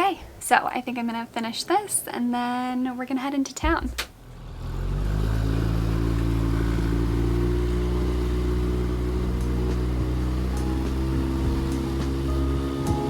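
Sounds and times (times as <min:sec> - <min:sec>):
small outboard motor running: 0:04.2 - 0:13.0.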